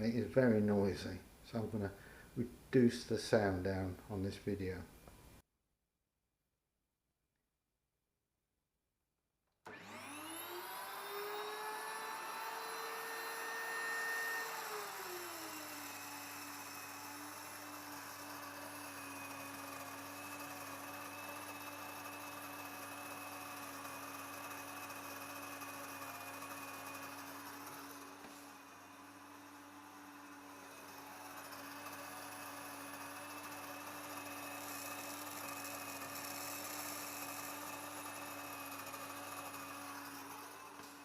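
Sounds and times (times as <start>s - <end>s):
electric grain mill motor whining: 9.7s - 41.0s.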